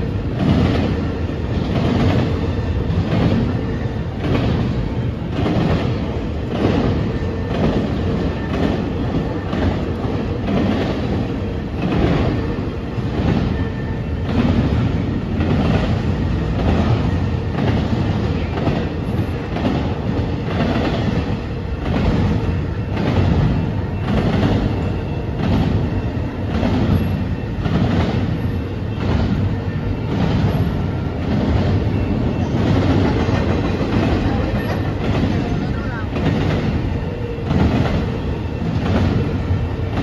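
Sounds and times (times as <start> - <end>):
freight train rumble: 0.0 - 40.0
train wheels clacking over rail joints: 0.0 - 40.0.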